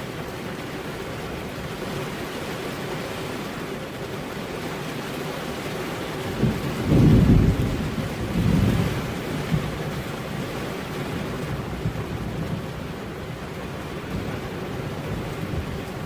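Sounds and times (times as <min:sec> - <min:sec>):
thunder rumbling: 0:06.4 - 0:16.0.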